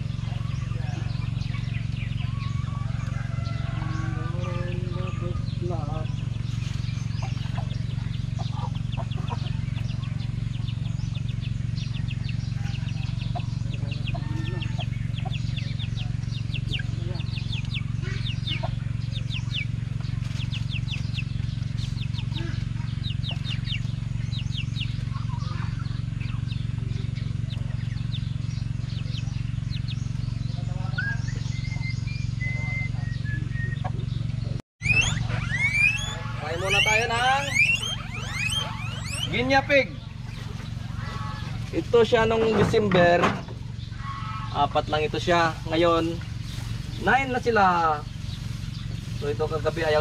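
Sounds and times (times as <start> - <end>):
birds chirping: 0.0 - 50.0
steady low hum: 0.0 - 50.0.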